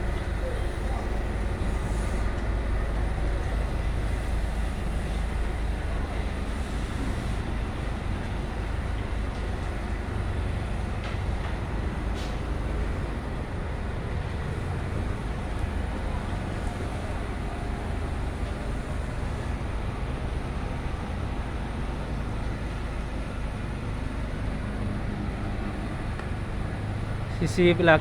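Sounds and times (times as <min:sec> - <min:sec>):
diesel engine drone: 0:00.0 - 0:28.0.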